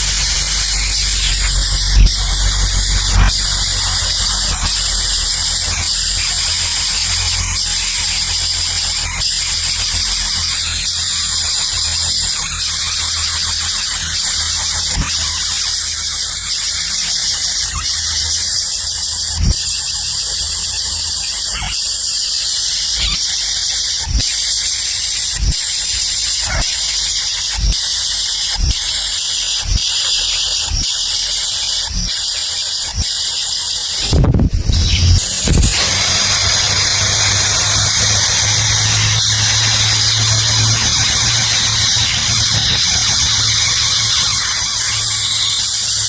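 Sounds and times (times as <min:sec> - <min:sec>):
high-pitched shrilling: 0:00.0 - 0:46.0.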